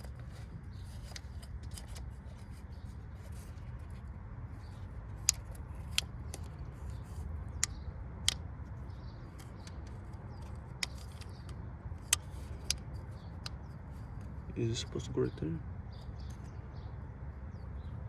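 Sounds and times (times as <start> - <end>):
small parts clicking and tapping: 5.2 - 8.4, 9.3 - 13.6.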